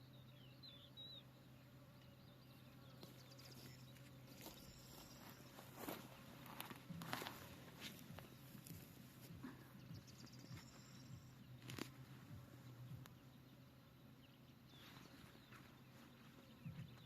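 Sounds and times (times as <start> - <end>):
honeybees buzzing: 0.0 - 17.0
soft high bird chirps: 2.0 - 13.6.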